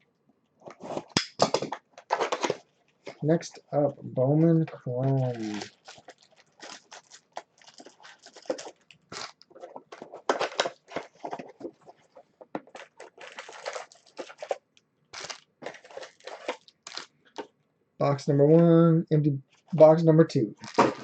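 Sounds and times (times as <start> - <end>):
packaging crinkling and tearing: 0.6 - 3.2, 5.0 - 17.5, 20.6 - 21.0.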